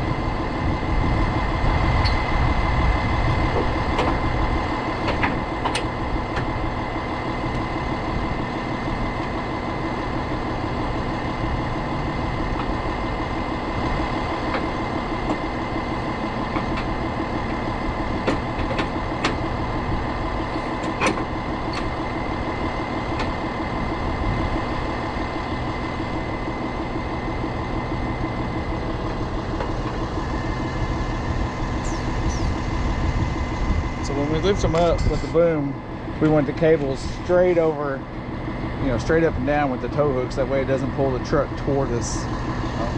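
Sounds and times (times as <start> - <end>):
tow truck engine idling: 0.0 - 42.9
sharp clicks and clanks: 5.0 - 6.5, 14.4 - 19.6, 20.5 - 22.0.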